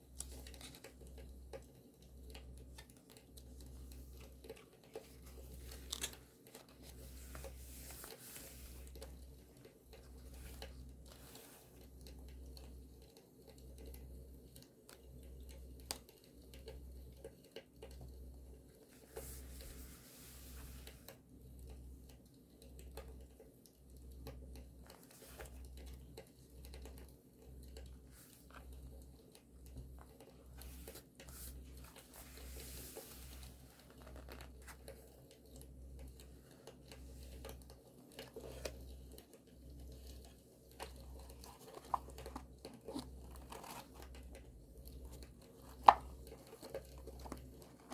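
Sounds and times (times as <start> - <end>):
paper rustling and crinkling: 0.2 - 1.2, 2.7 - 9.1, 30.0 - 35.1, 40.8 - 47.9.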